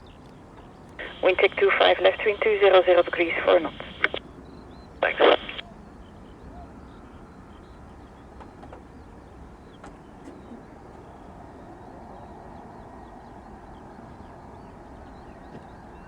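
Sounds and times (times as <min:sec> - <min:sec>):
soft clicks: 0:00.2 - 0:04.2, 0:05.0 - 0:05.6.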